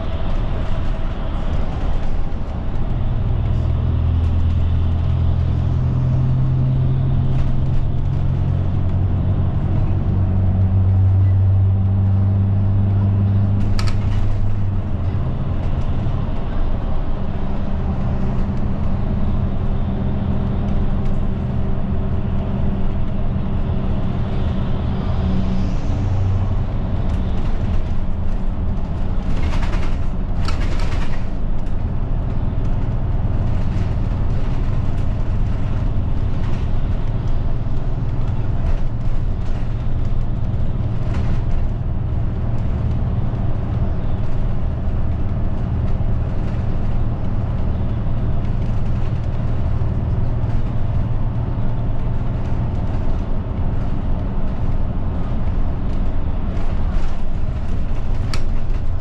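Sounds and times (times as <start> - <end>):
bus engine humming: 0.0 - 59.0.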